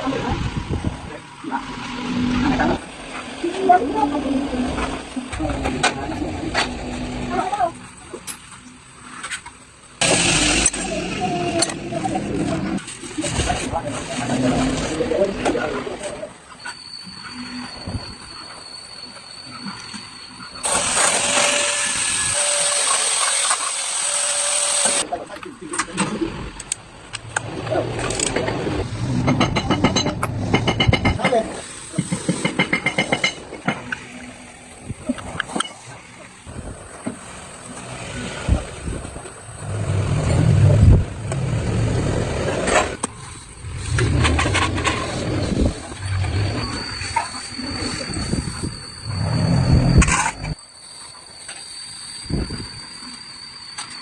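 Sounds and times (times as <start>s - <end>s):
faint high whine: 14.8s - 23.6s, 33.9s - 54.0s
loud steady hiss: 20.6s - 25.1s.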